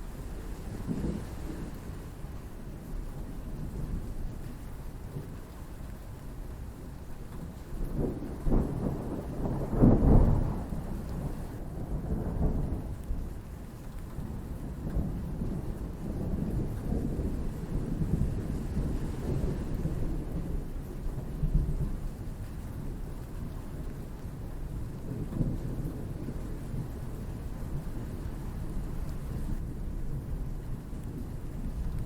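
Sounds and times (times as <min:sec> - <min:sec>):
steady rain: 0:00.0 - 0:32.0.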